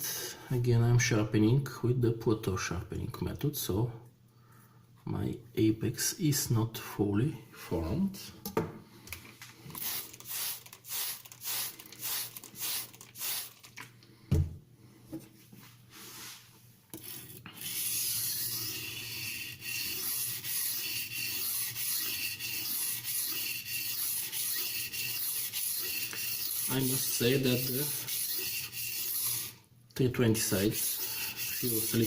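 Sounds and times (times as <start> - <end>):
knife scraping on whetstone: 16.1 - 29.6, 30.6 - 32.0.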